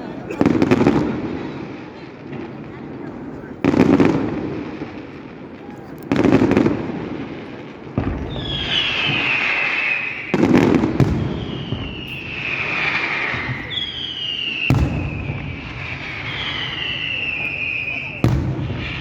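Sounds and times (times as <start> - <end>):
fireworks bangs: 0.0 - 19.0
fireworks whistling falling in pitch: 8.0 - 19.0.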